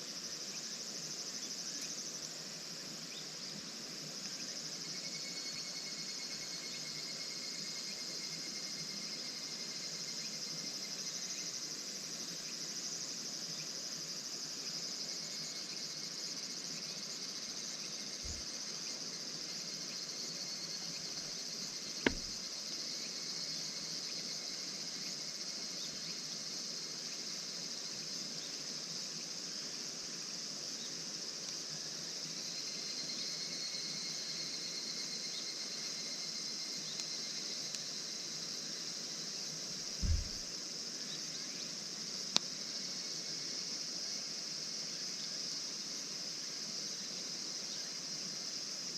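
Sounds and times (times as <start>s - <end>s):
night insects chirring: 0.0s - 48.9s
sharp snap: 22.1s - 22.4s, 40.0s - 40.4s.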